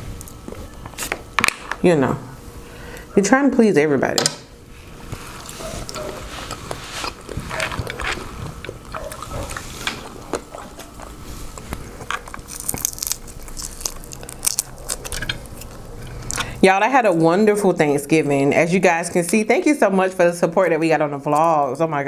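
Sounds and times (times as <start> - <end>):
close chewing with crunches: 4.8 - 16.6.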